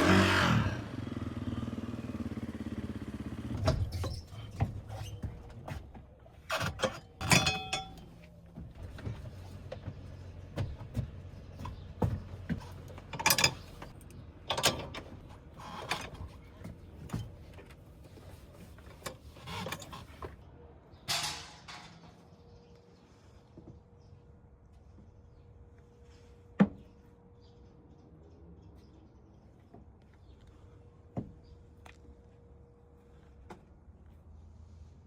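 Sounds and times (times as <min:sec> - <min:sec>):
hardware clicks and knocks: 0:04.6 - 0:17.8.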